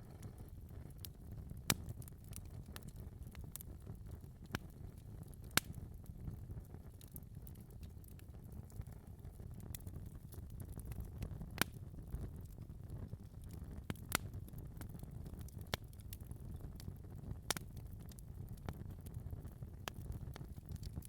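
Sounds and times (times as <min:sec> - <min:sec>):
fireplace fire crackling: 0:00.0 - 0:21.0
low rumble of fire: 0:00.0 - 0:21.0
sharp pops of fire: 0:11.5 - 0:11.8, 0:13.8 - 0:14.9.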